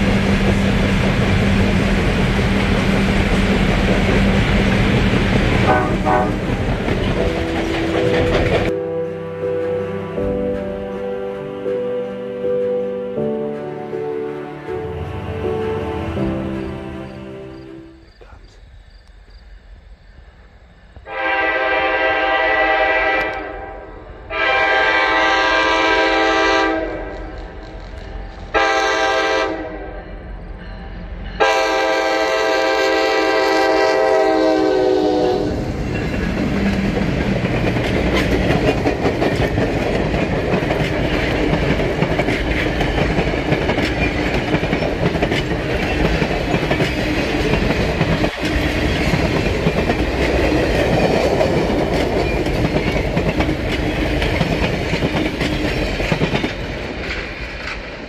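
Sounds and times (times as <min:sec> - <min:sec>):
locomotive horn: 0:05.6 - 0:06.6, 0:21.1 - 0:27.3, 0:28.5 - 0:30.3, 0:31.4 - 0:35.8
wheels clicking over rail joints: 0:35.7 - 0:58.0.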